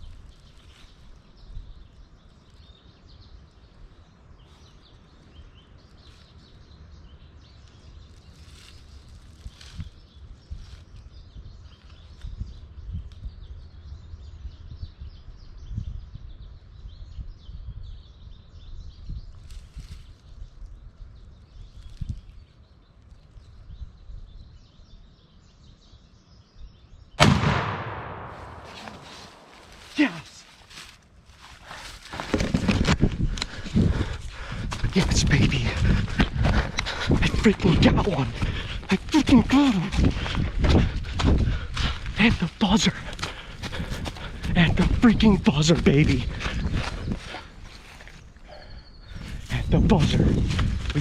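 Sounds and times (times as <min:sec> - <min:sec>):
wind rumble on microphone: 0:00.0 - 0:27.2, 0:32.2 - 0:51.0
small birds chirping: 0:00.0 - 0:51.0
shotgun blast: 0:27.2 - 0:29.8
low outdoor rumble: 0:27.2 - 0:30.8.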